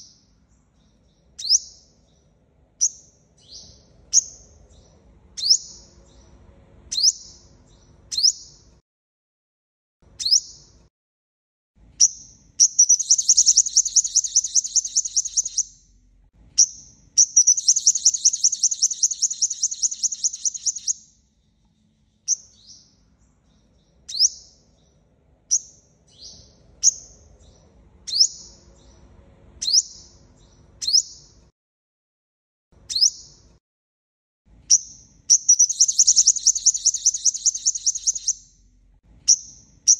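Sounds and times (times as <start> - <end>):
sunbird chirping: 0.0 - 6.3, 12.0 - 16.0, 16.6 - 24.9, 25.5 - 29.0, 32.9 - 33.4, 34.7 - 38.6
rapid bird trills: 12.6 - 15.8, 16.6 - 21.0, 34.7 - 38.6.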